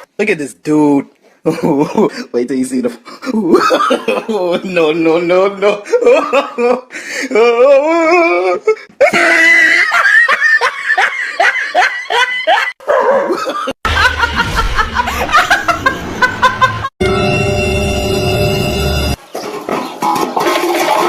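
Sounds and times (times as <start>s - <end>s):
person laughing hard: 3.2s - 4.6s, 5.6s - 16.9s
low rumble: 13.9s - 16.9s
music: 17.0s - 19.2s.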